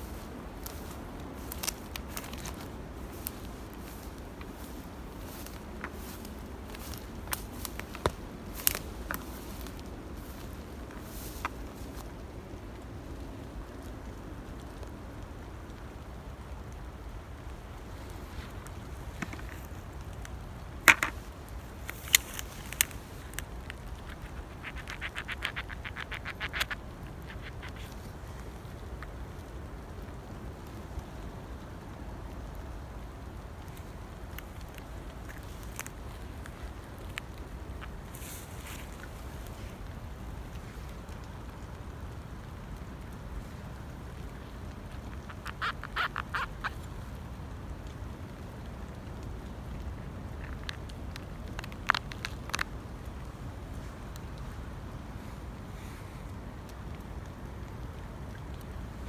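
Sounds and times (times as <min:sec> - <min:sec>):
low wind rumble: 0:00.0 - 0:59.0
sharp snaps: 0:18.8 - 0:29.1
bird calling: 0:20.8 - 0:29.0, 0:43.5 - 0:47.2
bird chattering call: 0:24.0 - 0:28.0, 0:45.0 - 0:46.9.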